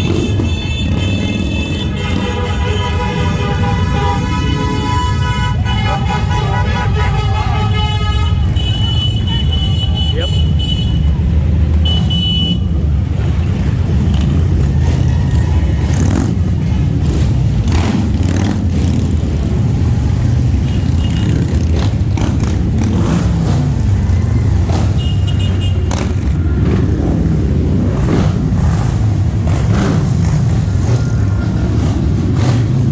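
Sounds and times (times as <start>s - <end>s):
motorcycles rumbling past: 13.1s - 32.9s.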